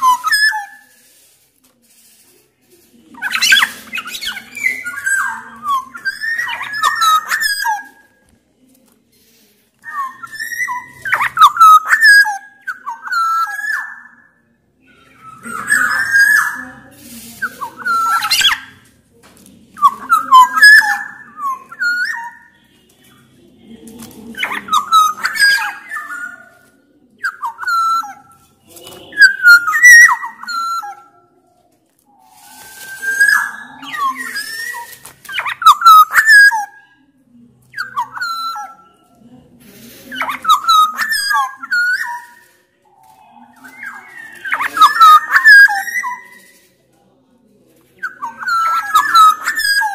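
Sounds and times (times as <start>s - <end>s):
bird singing fluty whistled phrases: 0.0s - 1.3s, 3.2s - 8.1s, 9.8s - 14.3s, 14.9s - 18.7s, 19.8s - 23.1s, 24.3s - 31.2s, 32.3s - 36.8s, 40.2s - 46.6s, 48.0s - 49.9s.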